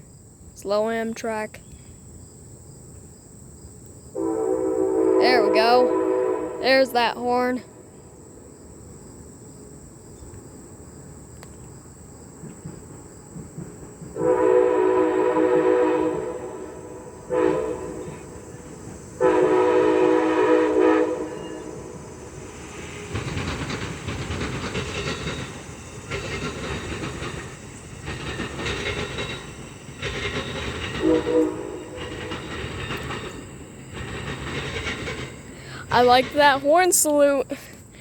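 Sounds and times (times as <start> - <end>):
train rumbling past: 0.0 - 38.0
locomotive horn blasts: 4.2 - 7.1, 14.2 - 18.4, 19.2 - 22.0, 31.0 - 32.0
wheels clicking over rail joints: 9.6 - 14.4, 21.4 - 38.0.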